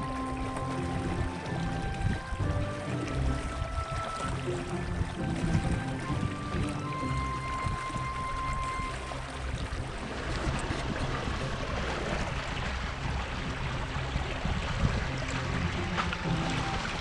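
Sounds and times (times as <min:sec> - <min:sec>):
water rushing along a boat hull: 0:00.0 - 0:17.0.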